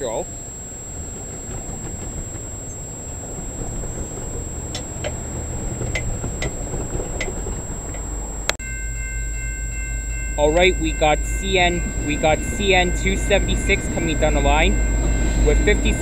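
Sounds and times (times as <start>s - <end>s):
train wheels clicking: 0.0s - 8.6s, 10.4s - 16.0s
train rumbling: 0.0s - 16.0s
low hum with high tones: 8.7s - 16.0s.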